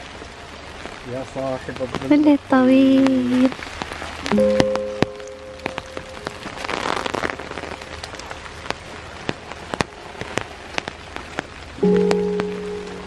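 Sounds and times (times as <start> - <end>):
raindrops ticking on umbrella: 0.0 - 13.0
low chord of background music: 4.4 - 6.8, 11.8 - 13.0.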